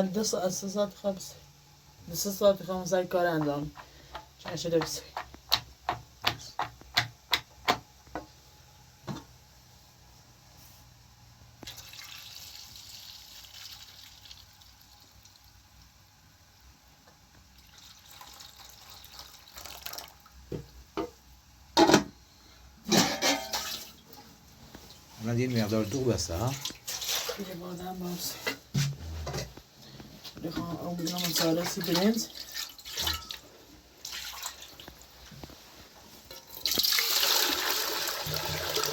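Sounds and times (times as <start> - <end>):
liquid pouring into a container: 11.6 - 15.5, 17.6 - 20.3, 31.1 - 33.4, 34.0 - 34.9, 36.3 - 38.9.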